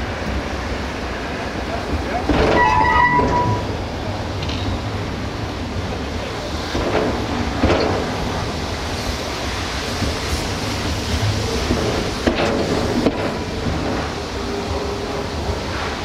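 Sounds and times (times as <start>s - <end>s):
train rumbling on rails: 0.0s - 16.0s
high metallic squeal: 2.5s - 3.7s.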